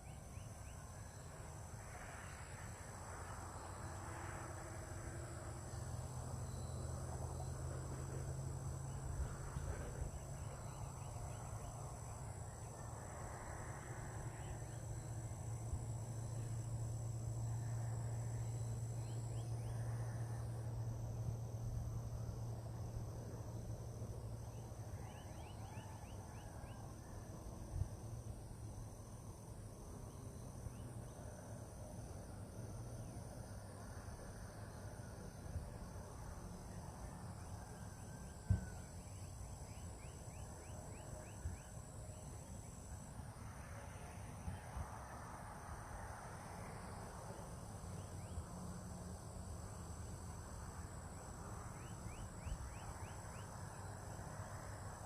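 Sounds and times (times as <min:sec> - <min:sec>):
insects trilling: 0:00.0 - 0:55.0
thump: 0:38.5 - 0:38.7.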